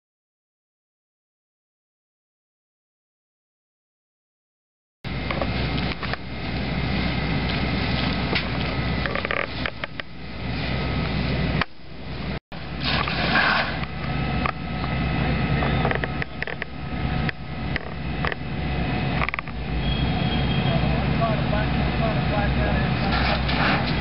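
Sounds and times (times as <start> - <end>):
burning wood crackling: 5.1 - 24.0
low engine-like rumble: 5.1 - 24.0.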